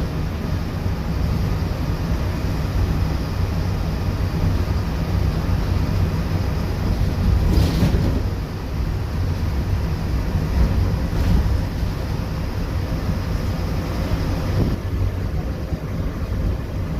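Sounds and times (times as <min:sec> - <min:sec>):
bus engine drone: 0:00.0 - 0:16.9
road noise: 0:00.0 - 0:16.9.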